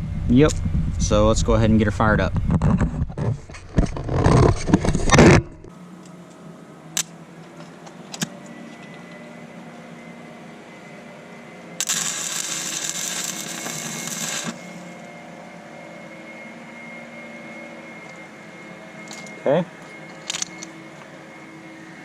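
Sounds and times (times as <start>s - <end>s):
welding arc crackling: 11.8s - 14.9s.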